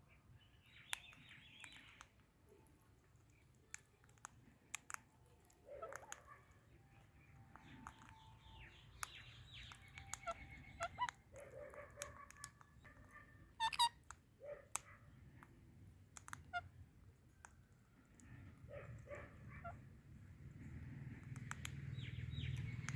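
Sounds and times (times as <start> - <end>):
parrots chirping and chattering: 0.6 - 17.0, 18.2 - 20.6, 21.3 - 22.9
sharp clicks: 21.2 - 22.9.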